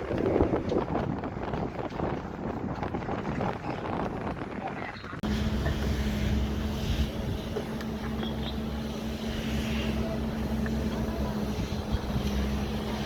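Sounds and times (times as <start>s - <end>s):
engine droning steadily: 5.2s - 13.0s.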